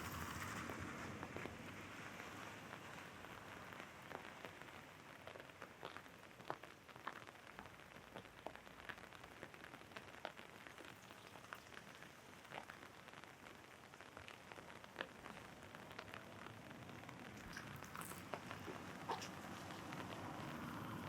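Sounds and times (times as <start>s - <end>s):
steady hiss of rain: 0.0s - 21.0s
raindrops tapping on umbrella: 0.1s - 21.0s
passing traffic: 17.0s - 21.0s.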